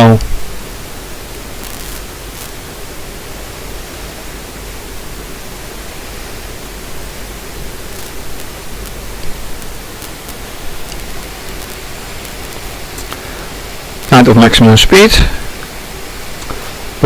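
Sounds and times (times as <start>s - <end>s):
steady hiss: 0.0s - 17.0s
faint ticks: 7.9s - 14.2s.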